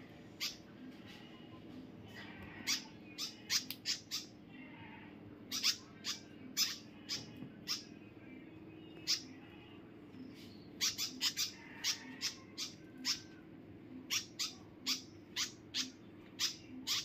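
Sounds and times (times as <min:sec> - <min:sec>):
small bird chirping: 0:02.2 - 0:04.4, 0:05.5 - 0:13.4, 0:14.1 - 0:17.0.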